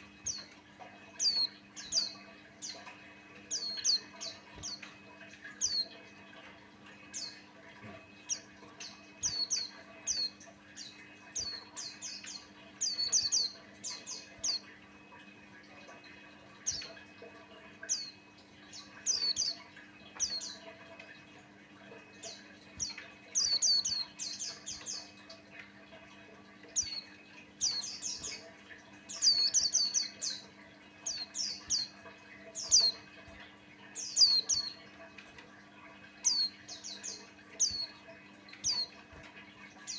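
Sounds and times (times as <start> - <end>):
faint low hum: 0.0 - 39.9
bird singing high chirps: 1.2 - 6.0, 7.0 - 7.5, 8.2 - 14.7, 17.8 - 20.7, 22.2 - 25.2, 26.7 - 28.5, 29.1 - 33.4, 34.0 - 34.8, 36.2 - 39.2.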